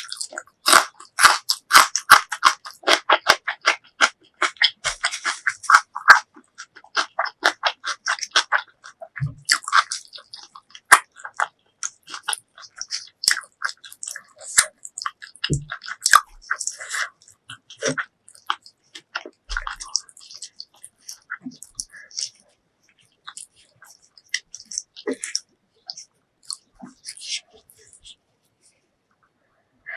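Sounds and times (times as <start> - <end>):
close chewing and mouth clicks: 0.0 - 28.2.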